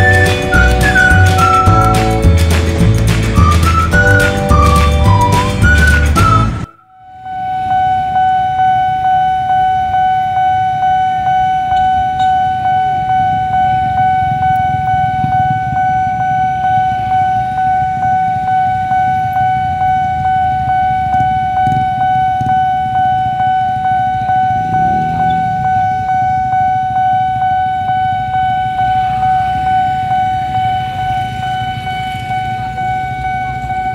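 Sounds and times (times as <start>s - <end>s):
level-crossing alarm pulsing tone: 3.9s - 33.9s
motorcycle engines idling: 11.6s - 33.9s.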